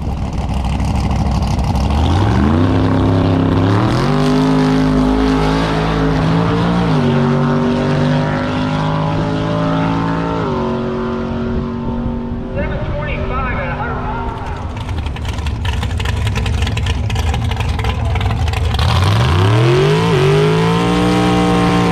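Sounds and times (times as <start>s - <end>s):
car engine accelerating hard: 0.0s - 12.5s, 14.1s - 21.9s.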